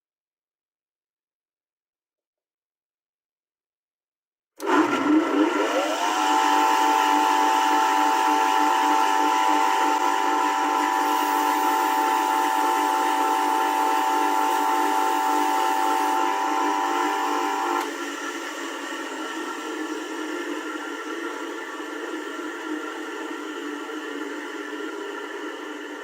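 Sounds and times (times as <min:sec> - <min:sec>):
small electric motor whine: 0:05.8 - 0:18.0.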